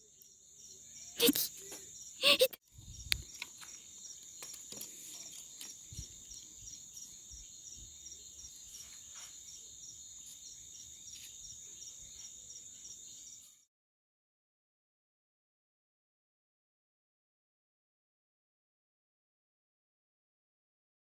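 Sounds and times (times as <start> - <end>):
crickets chirping: 0.0 - 13.6.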